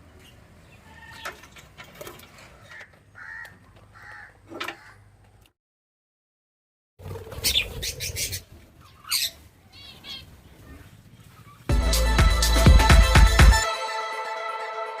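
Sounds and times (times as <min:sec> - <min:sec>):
pet birds squawking and chirping: 0:07.2 - 0:11.7.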